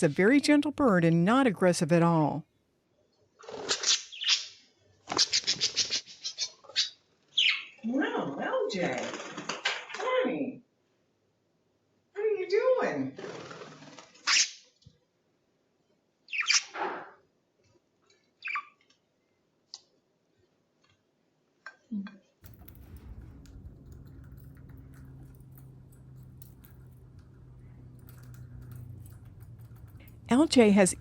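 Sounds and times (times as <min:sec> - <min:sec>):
steady low hum: 0:22.4 - 0:31.0.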